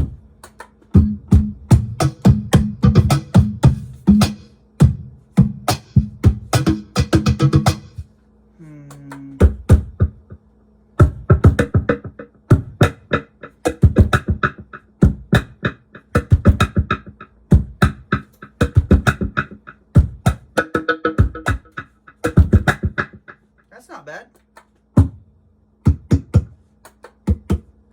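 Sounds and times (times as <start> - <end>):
faint steady hum: 0.0 - 20.6
cajon hand drumming: 11.0 - 23.3, 25.9 - 27.7.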